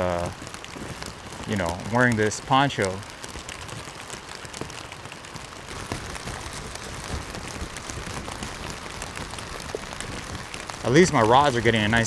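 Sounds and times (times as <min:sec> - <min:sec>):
rain pattering on plastic poncho: 0:00.0 - 0:12.0.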